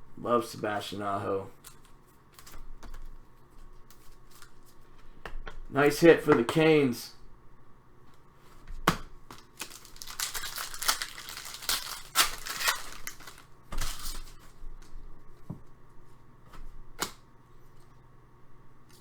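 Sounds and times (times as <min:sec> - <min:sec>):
cards rustling and clicking: 0:01.6 - 0:05.4, 0:09.3 - 0:14.9
wrappers tearing and crinkling: 0:09.4 - 0:14.5.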